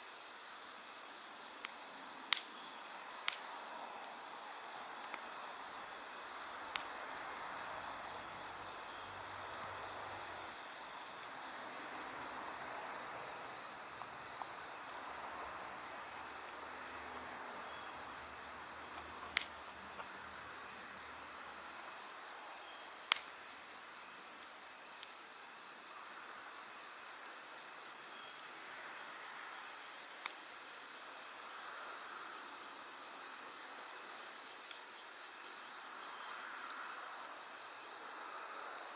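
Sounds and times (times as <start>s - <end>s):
campfire crackling: 0.7s - 25.3s, 29.6s - 31.2s, 33.5s - 35.2s
burning wood popping: 18.9s - 20.3s, 23.1s - 23.3s.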